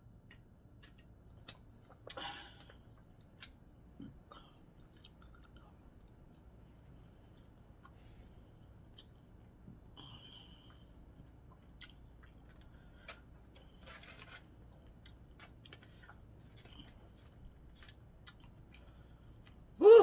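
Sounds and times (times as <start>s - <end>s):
person chewing: 4.4s - 6.6s, 10.6s - 19.7s
clicks and crackles from seafood: 11.6s - 19.6s.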